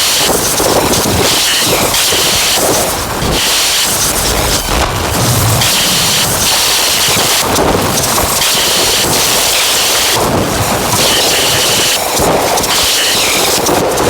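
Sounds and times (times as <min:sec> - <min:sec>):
distorted synthesizer noise: 0:04.0 - 0:06.9.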